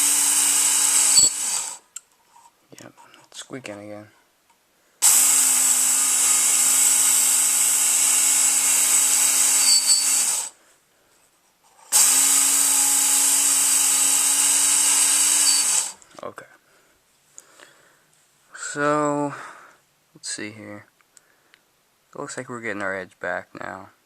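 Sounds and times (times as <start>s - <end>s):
motor hum: 0.0s - 1.8s
belt sharpener grinding knife: 0.0s - 2.0s, 5.0s - 10.5s, 11.9s - 16.0s
high squeak: 9.5s - 10.3s, 15.4s - 15.8s.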